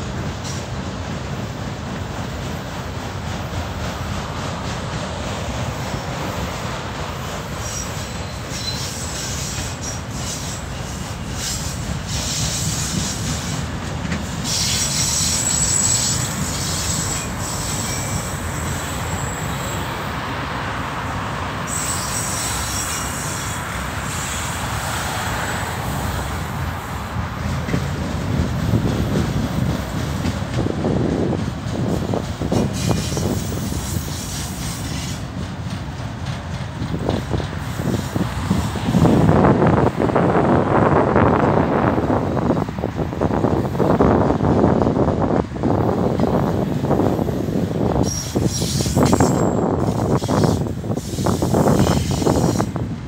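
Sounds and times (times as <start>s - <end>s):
train wheels rumbling on rail: 0.0s - 53.0s
high-pitched wheel squeal: 7.6s - 13.2s, 14.4s - 19.9s, 21.7s - 24.4s, 48.0s - 52.8s.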